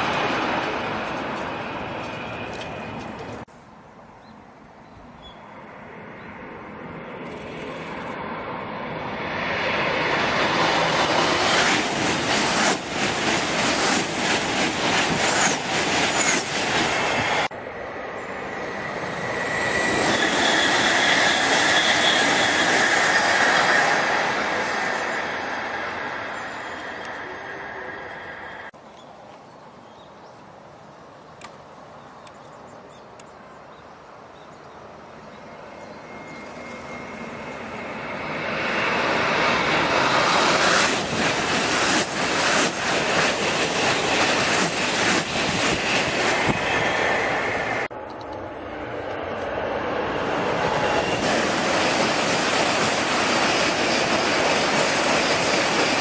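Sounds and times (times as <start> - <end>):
train high whine: 0.0 - 3.5, 5.0 - 28.8, 34.8 - 56.0
high-speed train passing: 0.0 - 28.8, 33.4 - 56.0
rapid clicks of train cars: 0.1 - 3.5, 10.3 - 17.4, 40.0 - 46.7.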